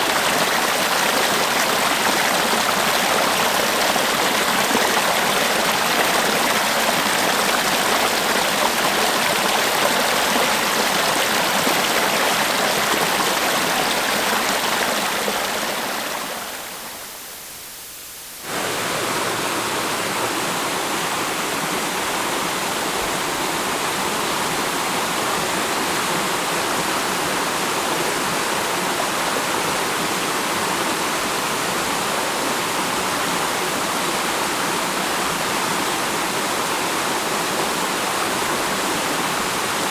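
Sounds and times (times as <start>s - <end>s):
river water rushing: 0.0s - 17.2s, 18.5s - 29.3s.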